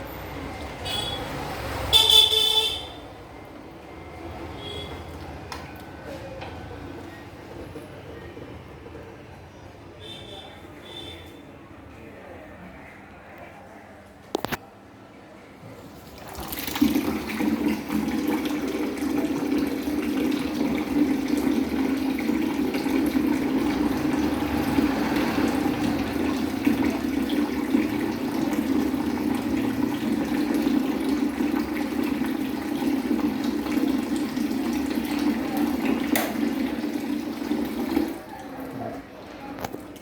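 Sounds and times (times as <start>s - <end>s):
water running from a tap: 16.0s - 38.8s.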